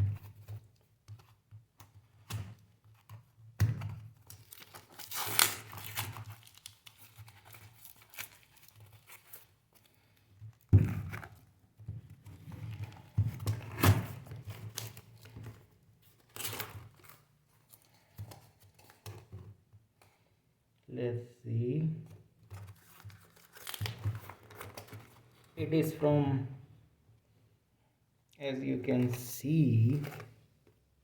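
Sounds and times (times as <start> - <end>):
packaging tearing and crinkling: 4.2 - 9.9, 16.1 - 17.9, 22.7 - 25.4.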